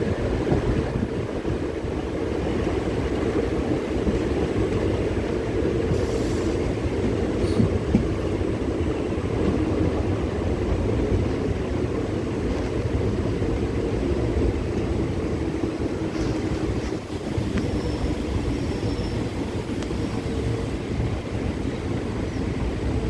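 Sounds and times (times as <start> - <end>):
train wheels rumbling on rails: 0.0 - 23.0
faint high squeal: 17.4 - 20.5.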